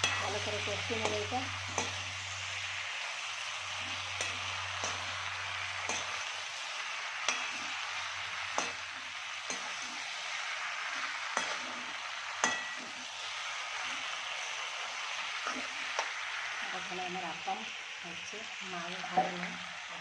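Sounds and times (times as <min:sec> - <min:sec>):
food sizzling in a pan: 0:00.0 - 0:20.0
spatula scraping a pan: 0:03.6 - 0:16.3.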